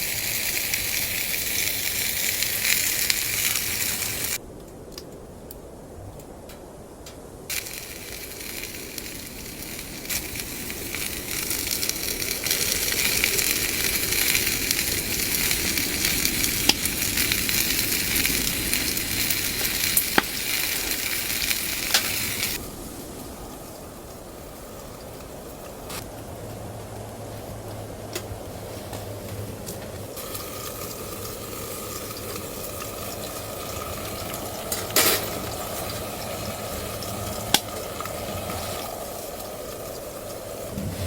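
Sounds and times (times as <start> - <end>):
food sizzling in a pan: 0.0 - 4.4, 7.5 - 26.0, 30.0 - 41.0
sharp pops: 18.9 - 22.6.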